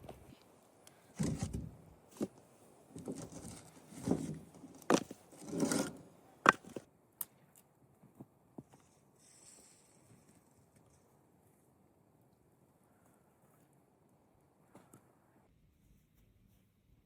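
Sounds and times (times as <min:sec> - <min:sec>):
rustling or scraping: 0:01.2 - 0:06.8.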